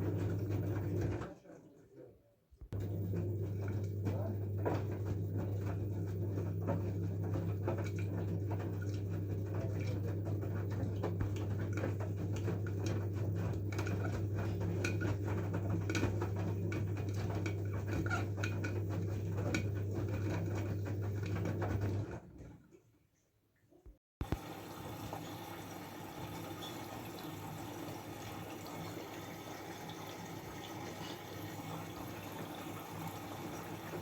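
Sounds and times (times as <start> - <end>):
washing machine motor humming: 0.0 - 1.4, 2.7 - 22.6, 24.2 - 34.0
drum tumbling wet laundry: 0.0 - 1.5, 2.7 - 22.9, 24.2 - 34.0
small clicks and splashes: 3.6 - 24.4.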